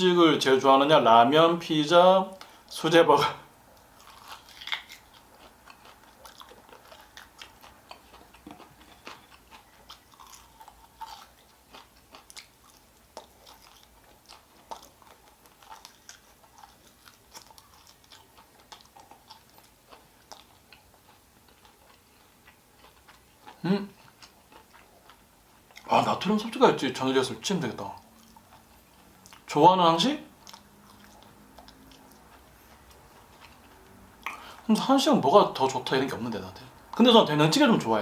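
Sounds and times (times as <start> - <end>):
person chewing food: 3.6 - 26.5, 27.8 - 29.5, 30.3 - 34.9.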